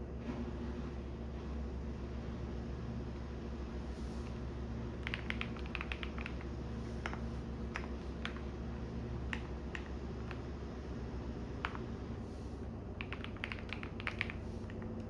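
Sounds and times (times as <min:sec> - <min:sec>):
washing machine humming: 0:00.0 - 0:15.0
keyboard typing: 0:04.9 - 0:10.5, 0:11.6 - 0:11.9, 0:13.0 - 0:15.0.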